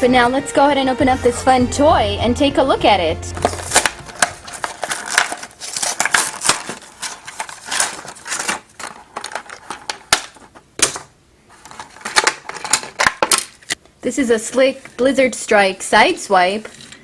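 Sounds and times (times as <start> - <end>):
cardboard and plastic crinkling: 3.4 - 13.8
packaging clicks and snaps: 3.5 - 13.8.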